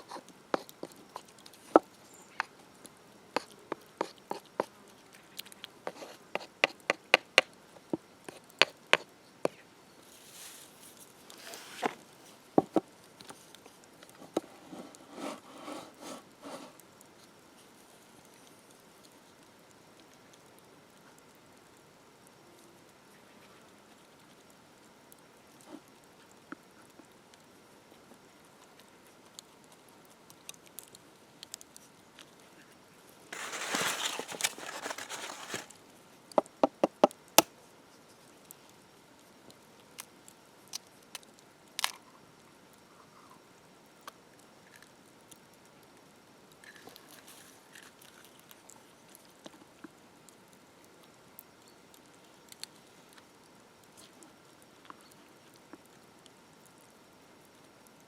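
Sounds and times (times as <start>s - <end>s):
faint clicks and crackles: 0.0s - 15.0s, 16.5s - 58.0s
rustling scrape: 10.1s - 12.0s, 14.4s - 16.8s, 33.3s - 35.8s.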